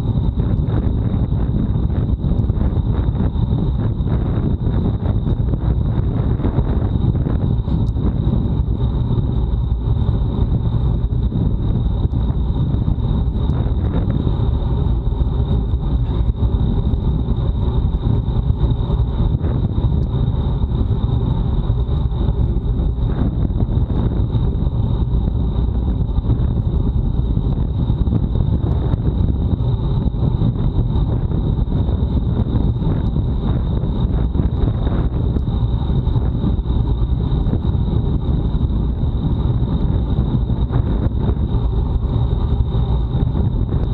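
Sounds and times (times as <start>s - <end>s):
thin high whine: 0.0s - 43.9s
wind rushing over microphone: 0.0s - 43.9s.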